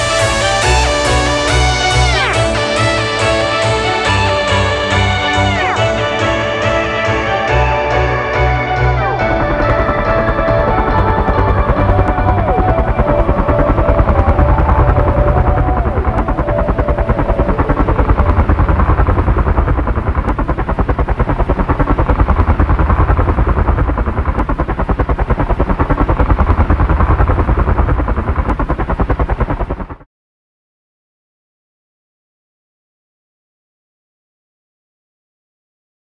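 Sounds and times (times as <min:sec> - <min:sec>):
model helicopter motor fluttering: 0:09.2 - 0:30.0.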